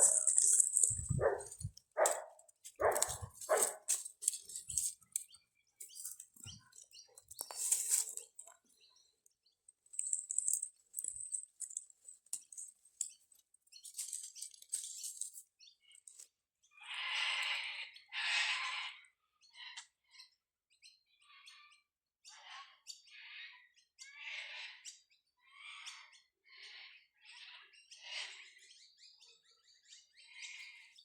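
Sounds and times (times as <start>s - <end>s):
dog barking: 1.0s - 3.9s.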